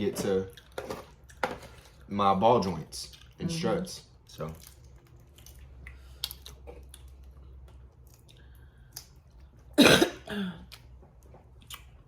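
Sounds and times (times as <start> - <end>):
loud throat sound: 9.8 - 10.6.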